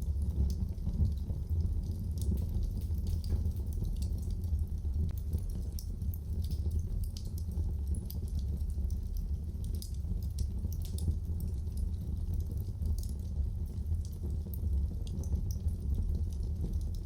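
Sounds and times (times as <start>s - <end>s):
fire crackles and pops: 0.0s - 17.0s
fire low rumble: 0.0s - 17.0s.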